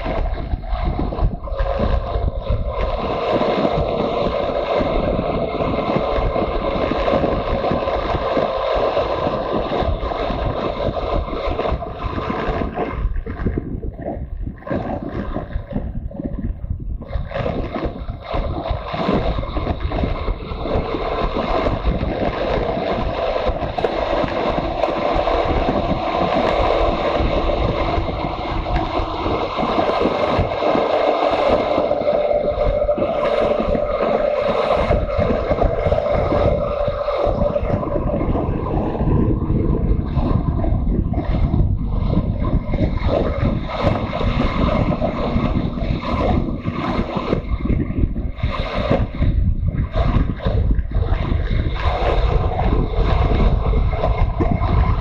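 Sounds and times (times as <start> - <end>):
wind buffeting microphone: 0.0 - 55.0
motorcycle engine and road noise: 19.2 - 51.0.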